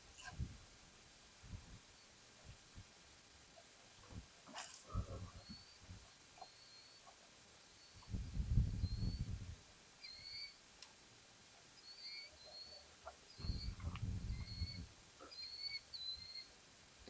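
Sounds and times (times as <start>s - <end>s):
bird chirping: 5.4s - 9.4s, 10.0s - 10.6s, 11.8s - 16.5s
faint clicks: 10.8s - 11.0s.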